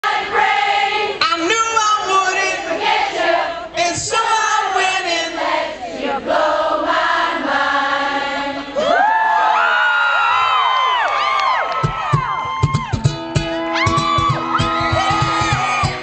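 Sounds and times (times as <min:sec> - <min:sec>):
crowd singing and chanting: 0:00.0 - 0:09.1.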